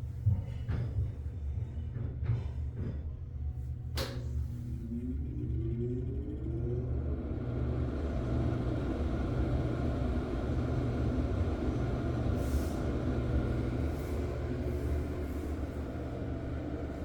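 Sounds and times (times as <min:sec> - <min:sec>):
exhaust fan humming: 0:03.6 - 0:17.0.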